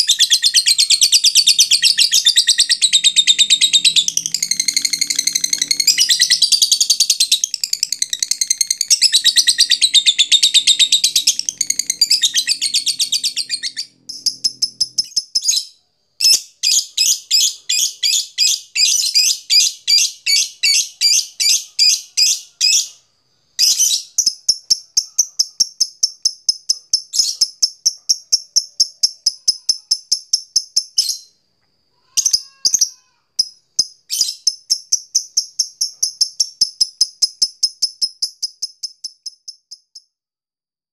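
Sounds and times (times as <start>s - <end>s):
lovebird chattering: 0.0s - 22.9s.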